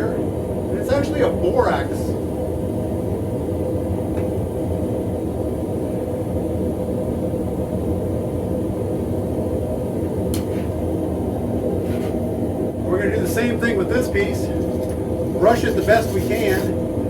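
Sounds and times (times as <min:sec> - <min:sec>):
gas forge burner running: 0:00.0 - 0:17.0.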